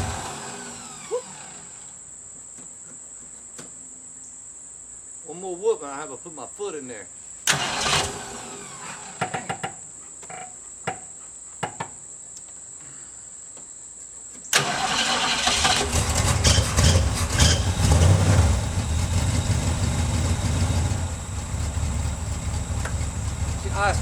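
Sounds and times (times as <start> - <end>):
car engine starting and idling: 0.0 - 1.8, 7.5 - 9.2, 14.6 - 24.0.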